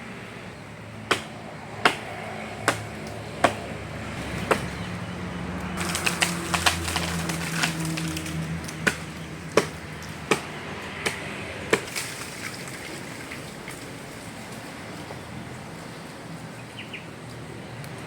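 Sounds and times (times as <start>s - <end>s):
low engine hum: 0.0s - 18.0s
sharp wooden knocks: 1.1s - 4.8s, 8.8s - 11.9s.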